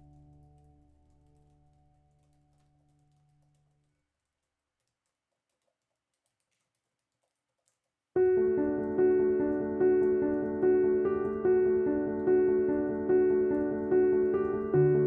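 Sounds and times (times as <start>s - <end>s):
slow piano music: 0.0s - 3.5s, 8.2s - 15.0s.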